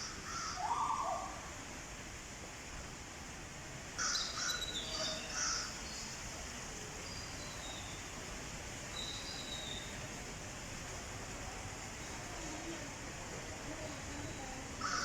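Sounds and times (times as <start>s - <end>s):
steady background hiss: 0.0s - 15.0s
crows cawing: 0.2s - 0.6s, 14.8s - 15.0s.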